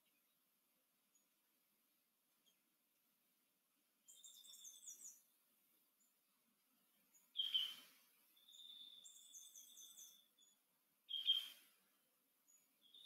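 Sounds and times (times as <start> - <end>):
bird chirping trill: 4.1 - 5.2, 7.1 - 7.8, 8.4 - 11.6, 12.5 - 13.0.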